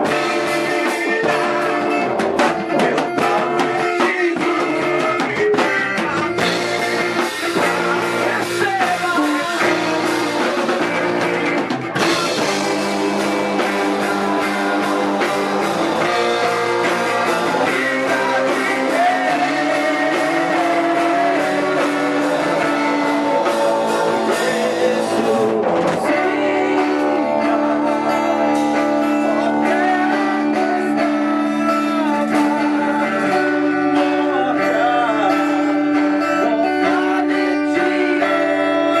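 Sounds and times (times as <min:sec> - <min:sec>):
drums: 0:00.0 - 0:39.0
guitar: 0:00.0 - 0:39.0
live band playing worship song: 0:00.0 - 0:39.0
person singing: 0:00.0 - 0:39.0.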